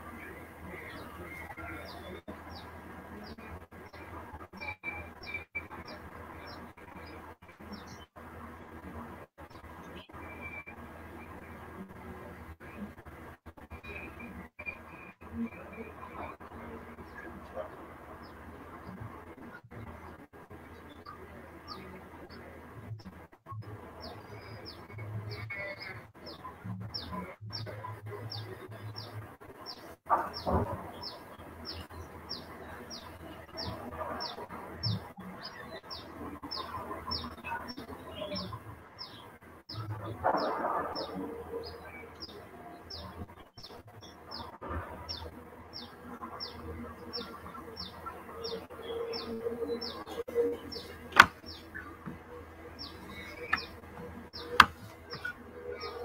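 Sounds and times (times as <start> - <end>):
bird chirping: 0.0 - 8.1, 24.0 - 56.0
low background noise: 0.0 - 56.0.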